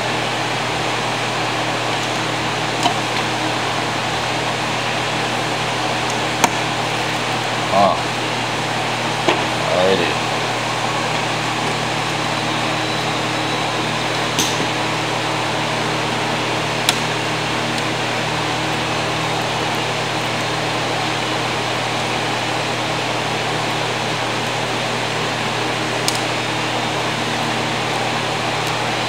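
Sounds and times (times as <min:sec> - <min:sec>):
motor hum and whir: 0:00.0 - 0:29.0.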